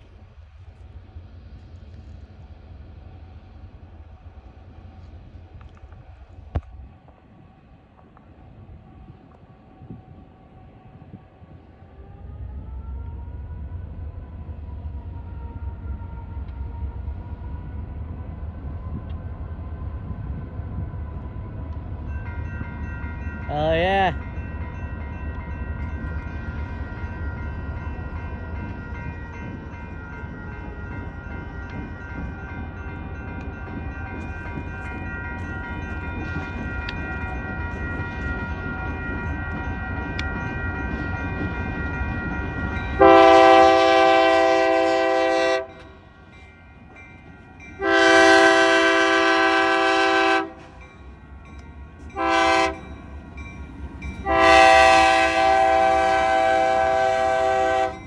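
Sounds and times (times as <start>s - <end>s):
locomotive rumbling on track: 0.0s - 58.0s
train air horn blasts: 43.0s - 45.9s, 47.8s - 50.8s, 52.2s - 52.9s, 54.2s - 58.0s.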